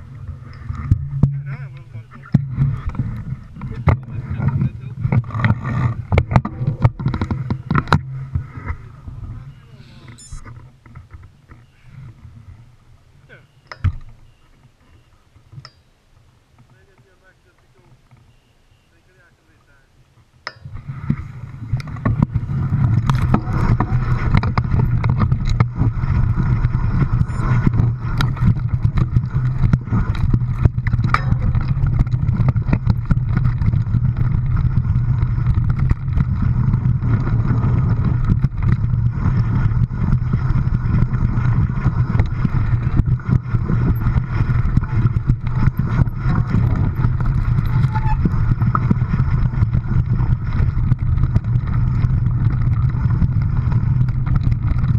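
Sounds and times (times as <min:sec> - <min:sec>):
vehicle engine hum: 0:00.0 - 0:54.9
rattles and knocks: 0:20.5 - 0:54.9.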